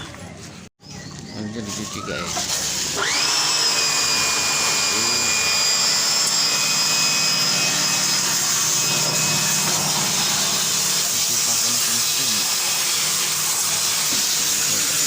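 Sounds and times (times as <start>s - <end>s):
pressure washer motor whine: 1.7s - 15.0s
water spraying hiss: 9.6s - 15.0s.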